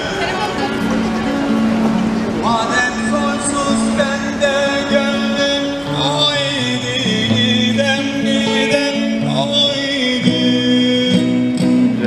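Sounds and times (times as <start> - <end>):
man singing folk song: 2.4 - 12.0.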